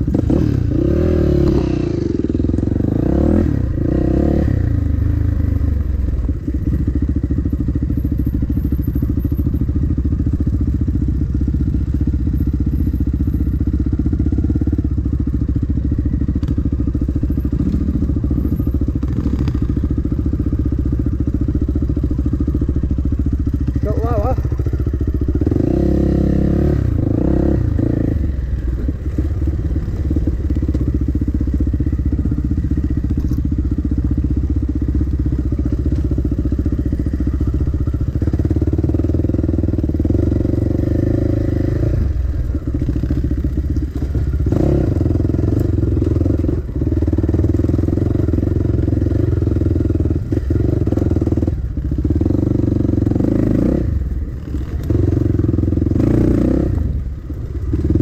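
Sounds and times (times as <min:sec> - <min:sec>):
dirt bike engine revving: 0:00.0 - 0:05.3, 0:23.6 - 0:30.5.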